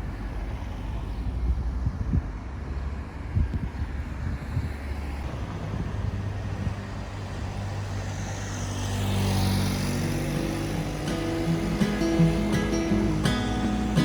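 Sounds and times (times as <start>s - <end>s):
car road noise: 0.0s - 14.0s
music: 10.3s - 14.0s.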